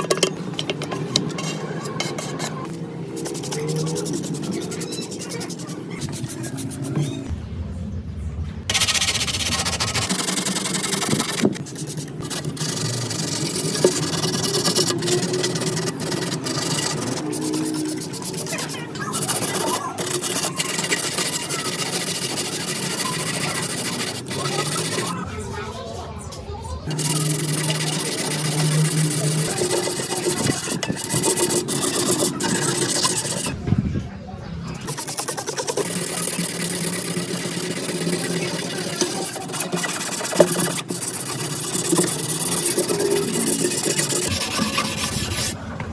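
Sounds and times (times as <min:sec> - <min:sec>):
abrasive rubbing on workpiece: 0:00.0 - 0:07.3, 0:08.7 - 0:26.1, 0:26.9 - 0:33.6, 0:34.8 - 0:45.6.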